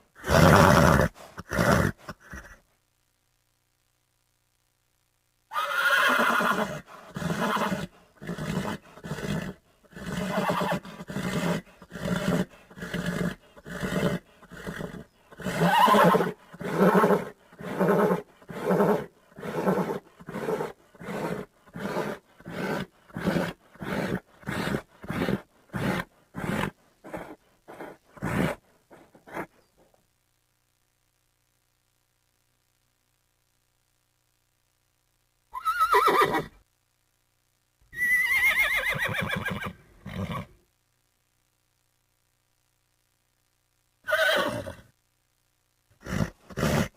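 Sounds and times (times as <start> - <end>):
horse breathy vocal sounds: 6.7 - 29.6, 46.0 - 46.9.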